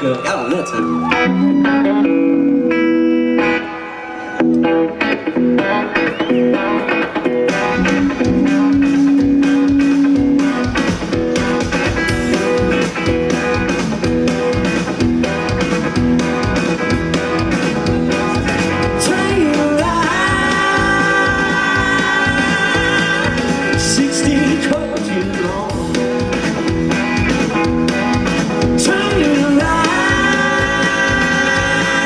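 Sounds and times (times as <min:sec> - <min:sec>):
electric guitar lines: 0:00.0 - 0:32.0
steady drum beat: 0:07.4 - 0:32.0.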